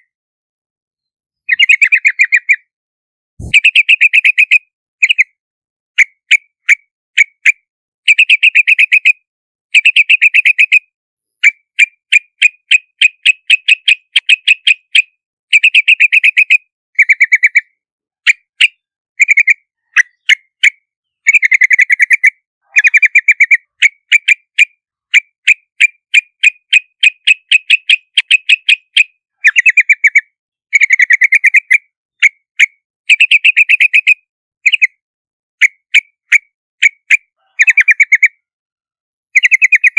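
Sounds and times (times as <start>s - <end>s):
bird chattering calls: 1.5s - 2.6s, 3.4s - 4.6s, 37.4s - 38.3s.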